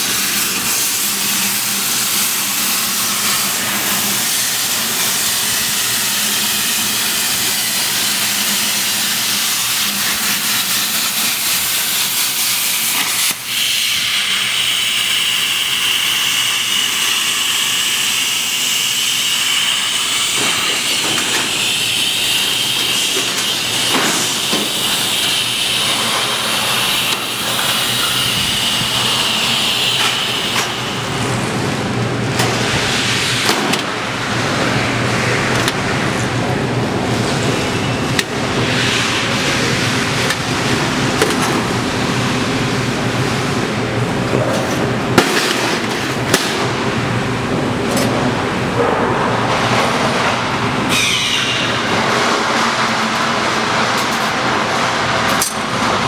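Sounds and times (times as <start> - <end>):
plasma cutter torch hissing: 0.0 - 31.4.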